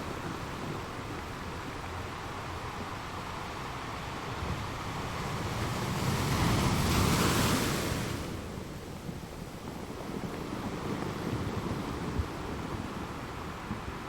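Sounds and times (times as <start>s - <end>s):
ocean waves crashing: 0.0s - 9.2s
low wash of water: 0.0s - 14.0s.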